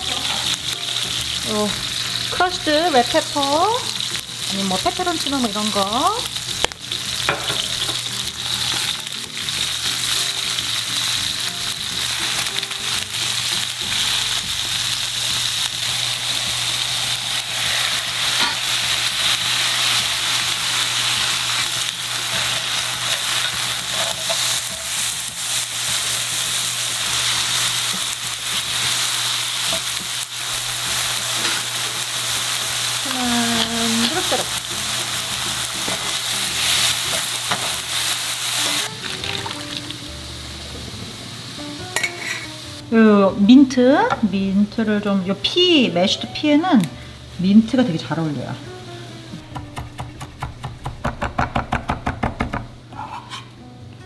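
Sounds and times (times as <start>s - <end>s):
fish frying in oil: 0.0s - 40.1s.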